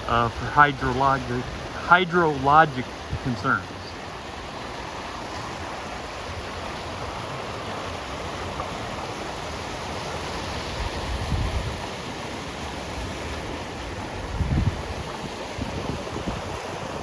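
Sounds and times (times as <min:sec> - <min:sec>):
creek water rushing: 0:00.0 - 0:17.0
wind rumble on microphone: 0:10.7 - 0:12.0, 0:14.0 - 0:17.0.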